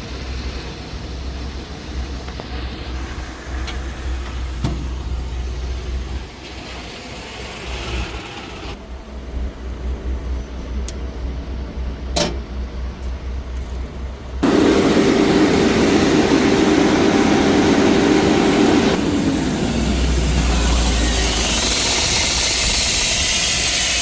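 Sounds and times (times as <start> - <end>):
diesel truck engine idling: 14.4 - 23.0
high hiss: 14.4 - 24.0.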